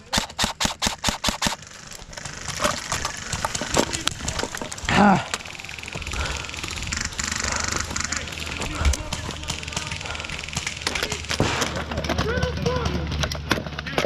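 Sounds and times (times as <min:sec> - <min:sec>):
airsoft gun firing: 0:00.0 - 0:03.7, 0:09.0 - 0:12.0.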